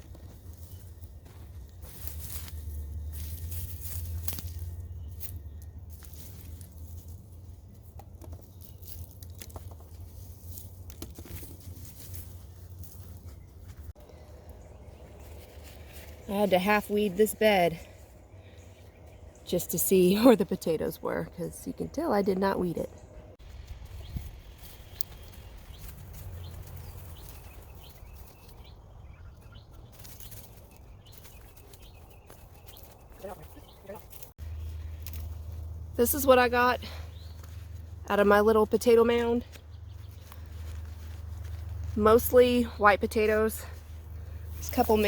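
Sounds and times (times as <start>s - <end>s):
soil and weeds pulled by hand: 0.0s - 28.9s, 29.7s - 45.0s
small bird chirping: 17.0s - 35.6s.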